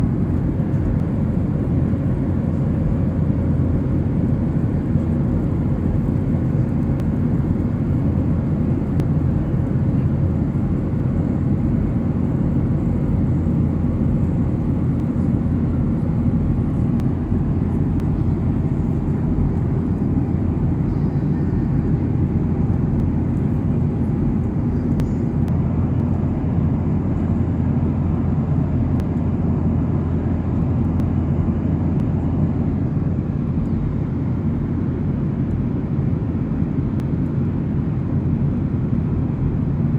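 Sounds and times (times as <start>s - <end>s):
airplane cabin rumble: 0.0s - 39.9s
faint hum: 0.0s - 39.9s.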